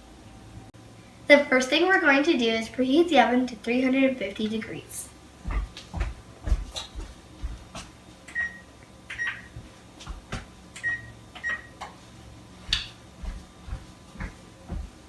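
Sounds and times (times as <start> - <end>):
oven control panel beeps: 8.3 - 9.5, 10.8 - 11.8.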